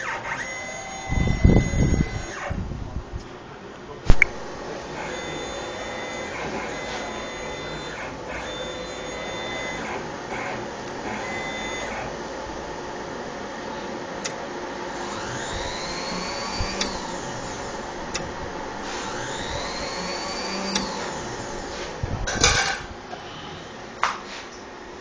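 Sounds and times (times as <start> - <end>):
stepper motors whining: 0.0 - 3.0, 4.1 - 22.8
sharp machine clicks: 15.0 - 18.3, 19.0 - 21.4.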